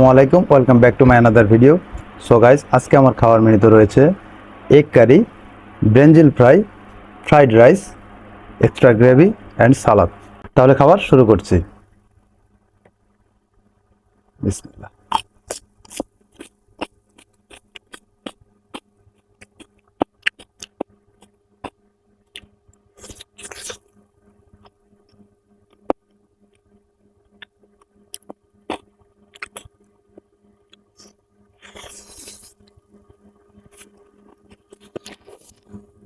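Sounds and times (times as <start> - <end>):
faint low hum: 0.0 - 36.0
crunchy bites: 15.1 - 24.0, 27.2 - 35.8
chewing clicks and smacks: 15.1 - 35.8.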